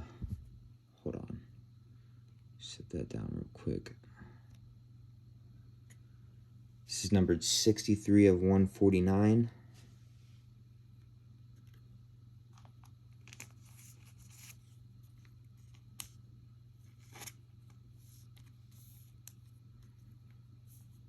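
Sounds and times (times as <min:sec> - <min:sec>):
steady low hum: 0:00.0 - 0:21.0
cards rustling and sliding: 0:12.5 - 0:16.2, 0:16.8 - 0:21.0.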